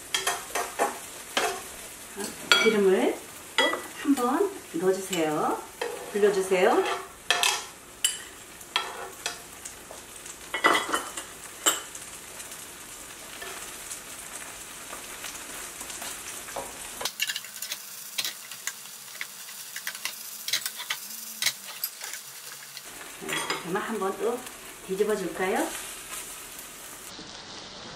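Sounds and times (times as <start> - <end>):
pancake sizzling in hot oil: 0.0 - 27.9
utensil scraping pan: 5.8 - 9.4, 16.6 - 23.8.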